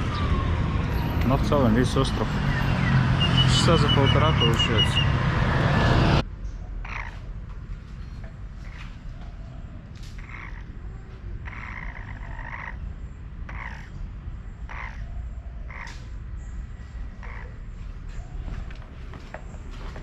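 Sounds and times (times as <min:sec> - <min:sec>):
frog croaking: 0:06.8 - 0:07.3, 0:10.1 - 0:16.2, 0:17.1 - 0:17.7.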